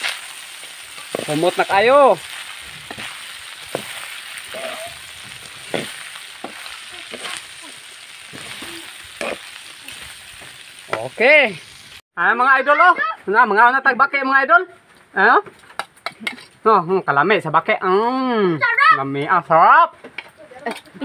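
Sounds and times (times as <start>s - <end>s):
frying hiss in a pan: 0.0s - 12.0s
spatula scraping and tapping pan: 2.8s - 7.4s.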